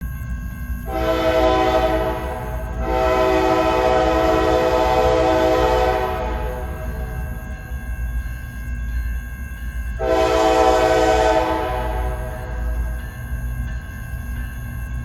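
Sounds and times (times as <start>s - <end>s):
low rumble of passing train: 0.0s - 15.0s
locomotive air horn: 0.9s - 7.2s, 10.0s - 12.8s.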